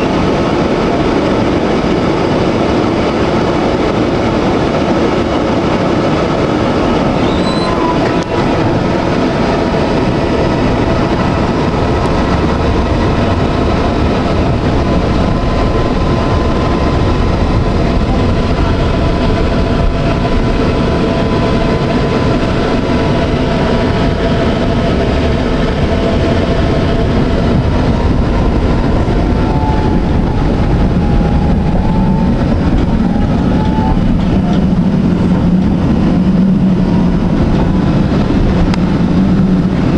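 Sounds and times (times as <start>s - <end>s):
tram rolling on rails: 0.0s - 39.9s.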